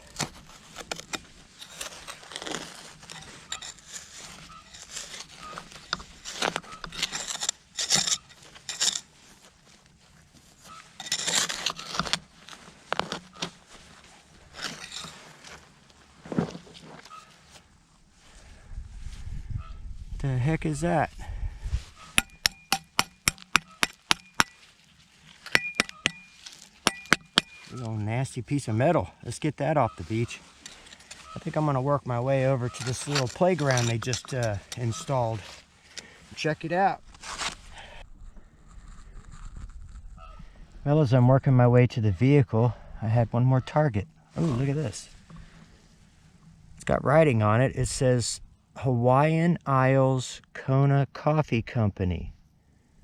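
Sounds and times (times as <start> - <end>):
digging tool scraping sand and gravel: 0.0 - 17.6, 21.9 - 38.0, 44.4 - 45.9
faint metal detector beeps: 25.5 - 27.8.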